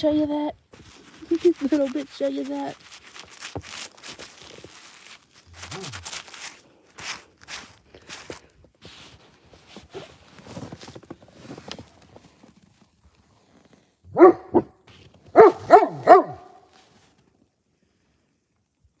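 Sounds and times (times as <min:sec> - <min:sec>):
soft crunching: 0:00.7 - 0:17.4
dog barking: 0:14.1 - 0:16.7.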